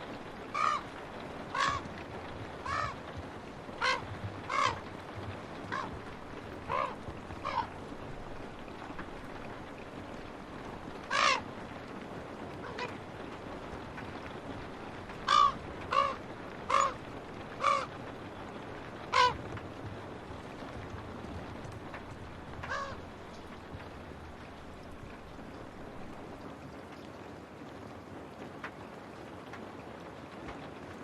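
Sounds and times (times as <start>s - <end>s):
rain hissing: 0.0s - 31.0s
crow cawing: 0.5s - 1.9s, 2.6s - 3.0s, 3.8s - 4.9s, 5.7s - 6.0s, 6.6s - 7.8s, 11.0s - 11.5s, 12.6s - 13.0s, 15.2s - 18.0s, 19.1s - 19.4s, 22.6s - 23.1s.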